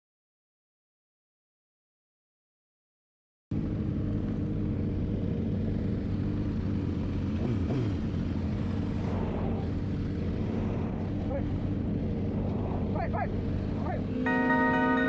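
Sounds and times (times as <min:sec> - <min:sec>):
engine idling: 0:03.5 - 0:15.0.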